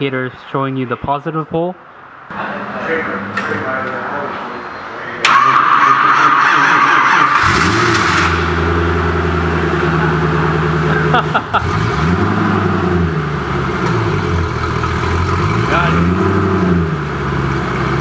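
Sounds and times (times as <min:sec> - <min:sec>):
starter motor whirring: 0:05.3 - 0:18.0
car engine idling and revving: 0:06.4 - 0:18.0.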